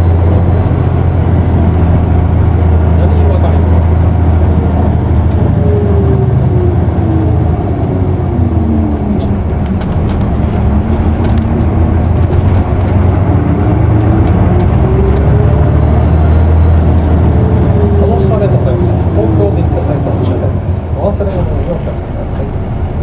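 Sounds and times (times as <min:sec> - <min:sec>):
bus diesel engine rumble and whine: 0:00.0 - 0:23.0
faint rattles and clicks: 0:09.2 - 0:13.1.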